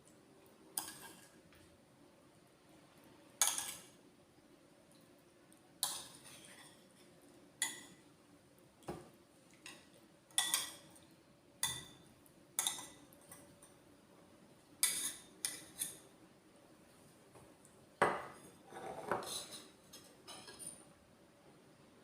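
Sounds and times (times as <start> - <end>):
cutlery clinking against a dish: 3.4 - 4.0, 5.8 - 6.8, 7.6 - 8.0, 9.6 - 10.9, 11.6 - 12.0, 12.6 - 13.8, 14.8 - 16.0, 18.1 - 20.8.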